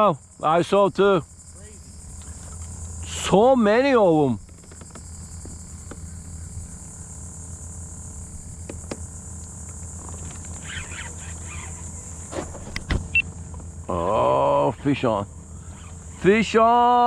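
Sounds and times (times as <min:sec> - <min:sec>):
insects buzzing: 0:00.0 - 0:17.0
sharp clicks and knocks: 0:08.6 - 0:10.6.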